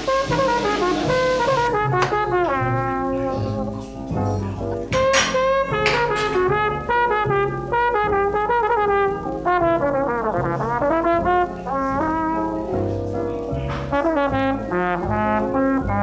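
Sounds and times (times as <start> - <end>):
jazz brass melody: 0.0 - 3.3, 6.4 - 12.6, 13.9 - 16.0.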